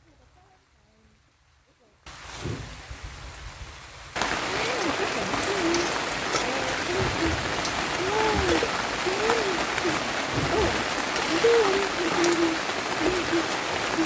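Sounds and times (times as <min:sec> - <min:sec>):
rain hiss with drop ticks: 0:01.1 - 0:14.0
faint voices talking: 0:04.2 - 0:14.0.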